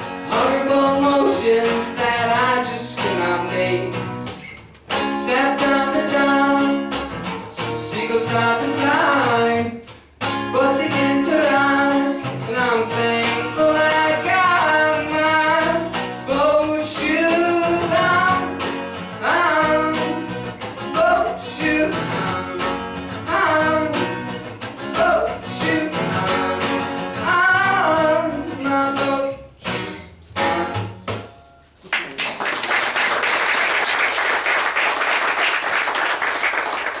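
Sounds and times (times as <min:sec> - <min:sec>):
acoustic guitar: 0:00.0 - 0:37.0
person singing: 0:00.3 - 0:04.0, 0:05.1 - 0:06.8, 0:10.5 - 0:18.6, 0:19.2 - 0:30.9
audience applause: 0:31.8 - 0:37.0.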